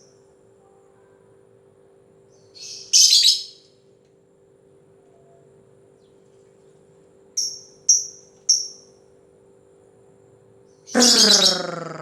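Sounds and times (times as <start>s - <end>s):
faint steady hum: 0.0s - 12.0s
harsh bird call: 10.9s - 12.0s
lovebird chirping: 11.0s - 12.0s.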